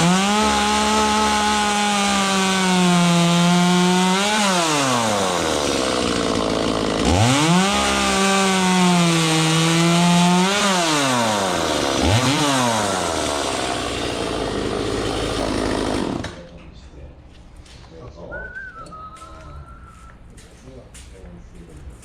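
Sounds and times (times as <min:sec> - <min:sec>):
chainsaw engine revving and idling: 0:00.0 - 0:16.5.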